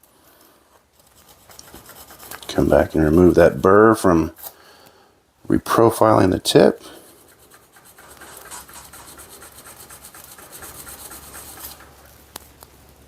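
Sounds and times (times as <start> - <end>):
screwdriver scraping on sandpaper: 1.1 - 2.8, 7.1 - 12.0.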